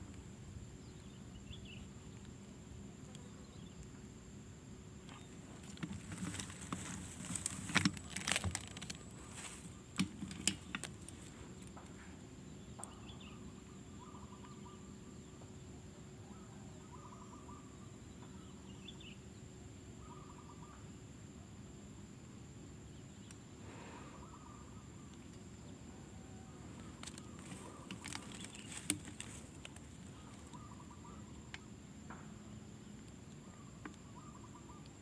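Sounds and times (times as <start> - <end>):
clicks and rustles: 5.1 - 12.0, 26.8 - 30.6
bird trilled calls: 12.8 - 14.9, 16.4 - 19.2, 20.0 - 20.8, 26.8 - 31.5, 33.4 - 35.0.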